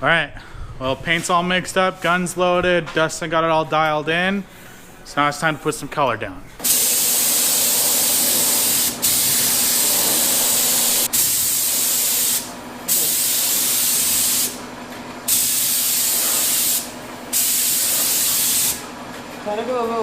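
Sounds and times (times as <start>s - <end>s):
paint spray gun hissing: 6.6s - 14.6s, 15.3s - 18.8s.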